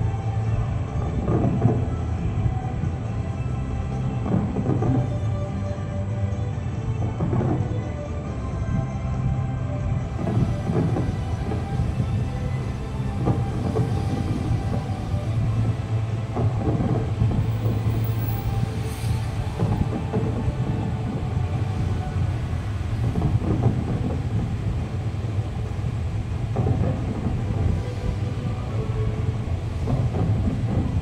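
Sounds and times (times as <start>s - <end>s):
fireworks bursting rumble: 1.0s - 5.4s, 7.0s - 8.8s, 9.9s - 31.0s.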